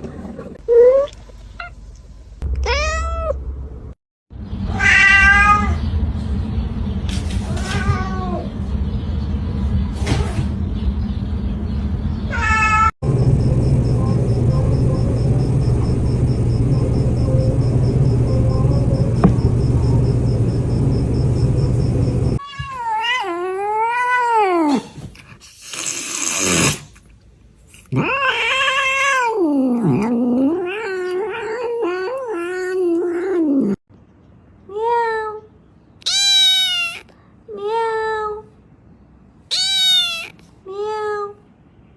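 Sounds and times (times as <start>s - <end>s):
cat meowing: 2.6s - 3.4s, 36.0s - 37.1s, 39.5s - 40.4s
low rumbling noise: 13.0s - 22.4s
cat hissing: 24.8s - 27.0s, 39.5s - 40.4s
cat yowling: 27.9s - 33.8s, 36.0s - 37.1s, 39.5s - 40.4s.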